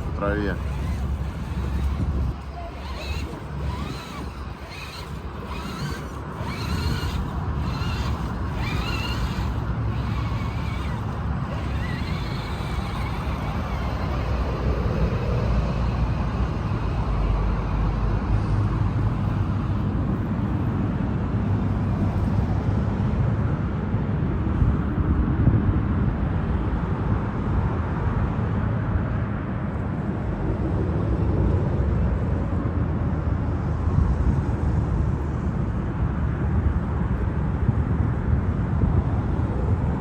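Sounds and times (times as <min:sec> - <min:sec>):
faint wavering whine: 0:00.0 - 0:15.5
wind rumbling on microphone: 0:00.0 - 0:40.0.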